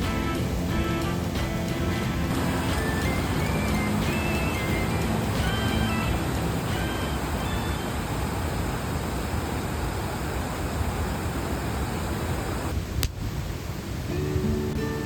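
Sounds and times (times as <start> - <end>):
acoustic guitar music: 0.0 - 8.0, 14.0 - 15.0
river rushing: 0.0 - 15.0.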